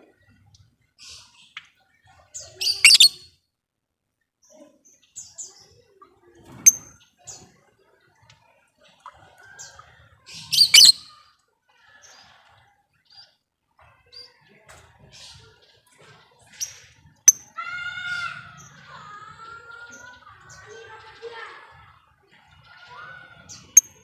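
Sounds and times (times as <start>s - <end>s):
lovebirds chirping: 2.4s - 3.2s, 10.4s - 11.0s.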